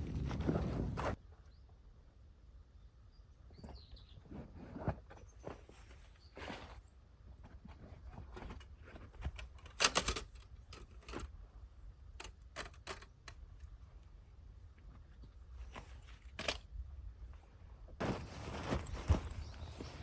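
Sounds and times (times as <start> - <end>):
camping gear clicking: 8.4 - 11.4, 12.2 - 13.8, 15.6 - 16.7, 18.0 - 20.0
footsteps on forest floor: 18.0 - 20.0.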